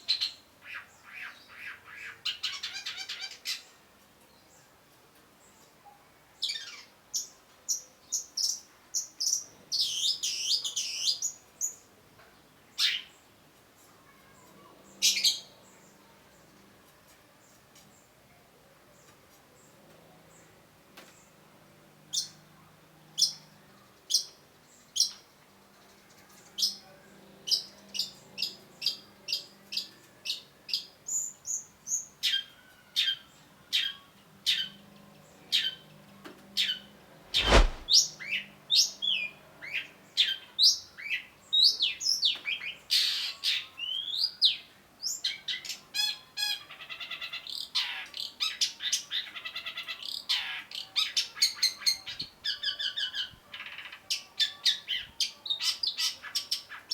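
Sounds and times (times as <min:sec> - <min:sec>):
loud click: 0:37.4 - 0:37.9.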